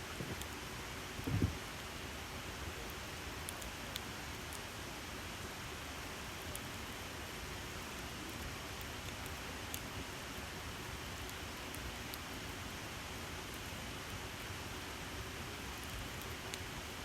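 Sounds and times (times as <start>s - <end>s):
campfire hissing: 0.0s - 17.0s
wood crackling and popping: 0.1s - 1.8s.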